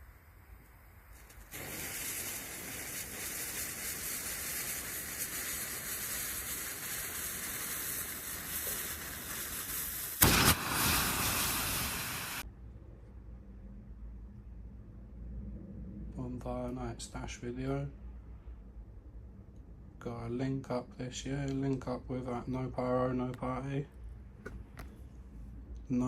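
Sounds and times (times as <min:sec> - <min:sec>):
firework hissing: 0:00.0 - 0:12.5
firework bangs: 0:01.1 - 0:12.4.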